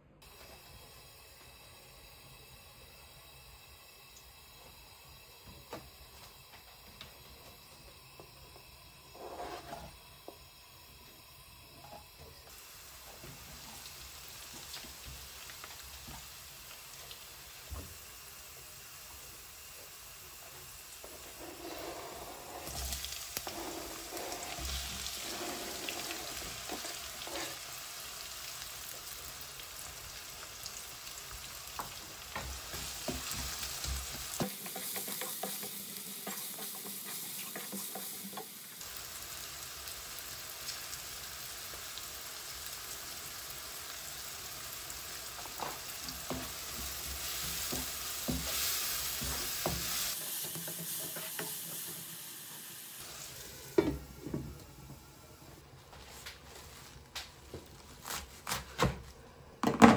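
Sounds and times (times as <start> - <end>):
garlic sizzling in hot oil: 0.2 - 54.4
onion frying: 0.2 - 59.2
wooden spatula scraping: 9.1 - 10.0, 21.0 - 27.6.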